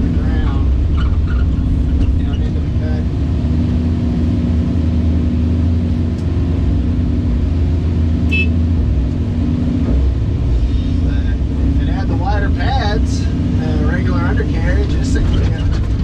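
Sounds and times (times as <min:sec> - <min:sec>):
excavator engine and hydraulics: 0:00.0 - 0:16.0.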